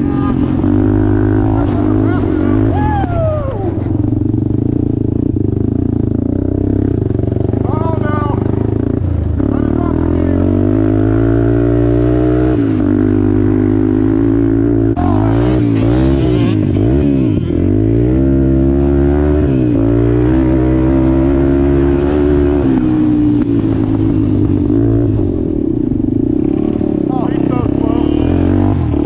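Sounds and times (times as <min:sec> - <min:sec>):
off-road vehicle engine revving: 0:00.0 - 0:29.0.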